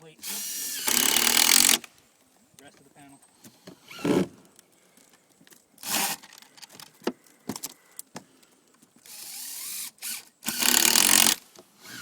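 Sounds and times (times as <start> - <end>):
power drill driving fasteners: 0.2 - 2.0, 3.4 - 8.0, 9.0 - 12.0.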